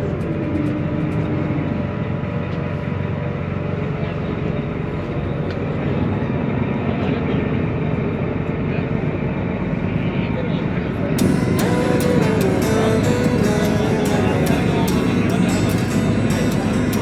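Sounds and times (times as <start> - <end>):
ferry engine drone: 11.0 - 17.0.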